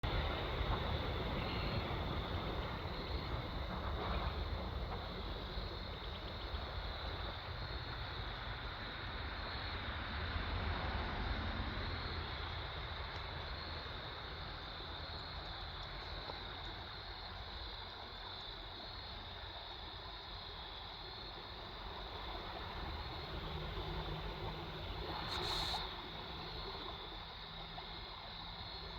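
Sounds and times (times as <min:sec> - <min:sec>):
river water flowing: 0:00.0 - 0:09.5, 0:19.5 - 0:28.9.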